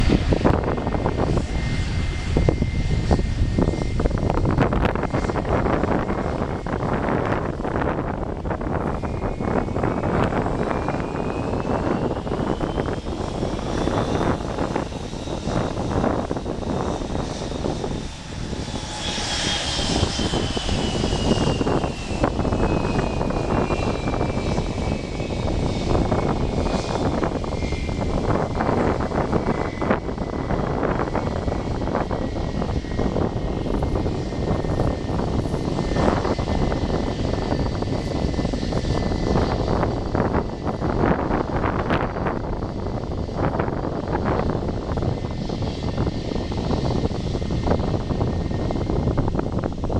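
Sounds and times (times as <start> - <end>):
turboprop engines running: 0.0 - 49.9
wind buffeting microphone: 0.0 - 49.9.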